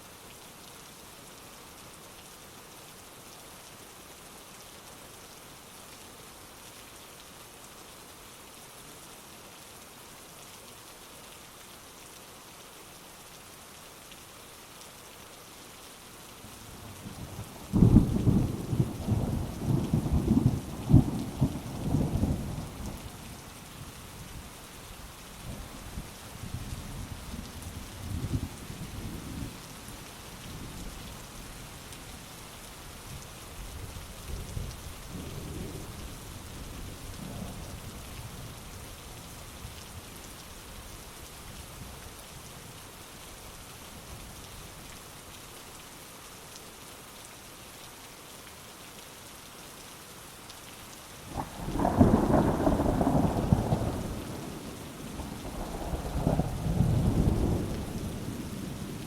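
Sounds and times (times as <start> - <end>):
heavy rain: 0.0 - 59.0
thunder rumbling: 51.4 - 59.0.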